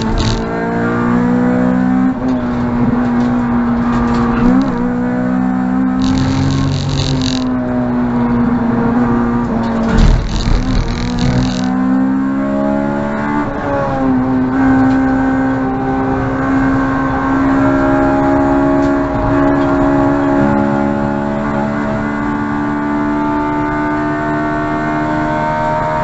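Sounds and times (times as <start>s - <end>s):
rumbling noise: 6.0s - 7.5s, 9.9s - 11.7s.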